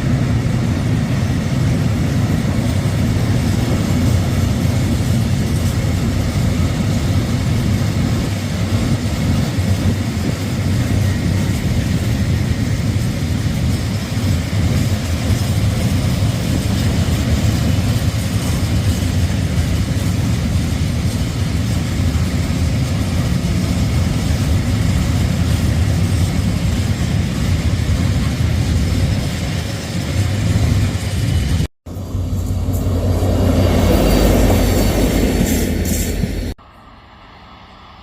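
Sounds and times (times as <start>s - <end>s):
diesel train engine droning: 0.0s - 38.0s.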